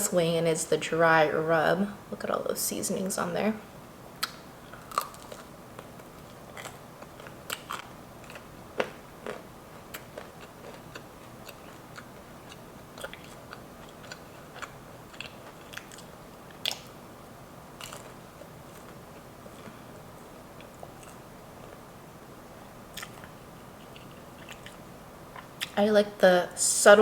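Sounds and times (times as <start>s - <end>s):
chewing with mouth clicks: 4.2s - 17.0s, 17.8s - 19.8s, 20.6s - 21.8s, 22.9s - 25.8s.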